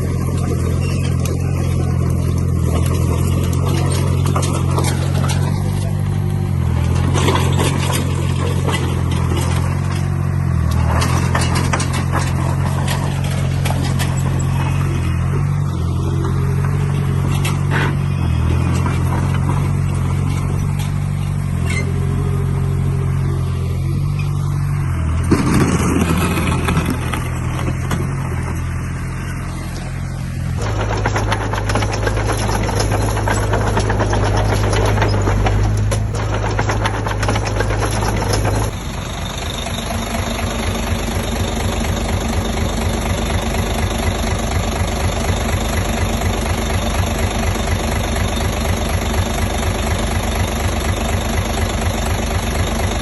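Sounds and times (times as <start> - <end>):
heavy diesel machinery running: 0.0 - 53.0
metal clanks: 2.5 - 6.0, 6.7 - 15.6, 16.2 - 22.0, 30.6 - 48.2.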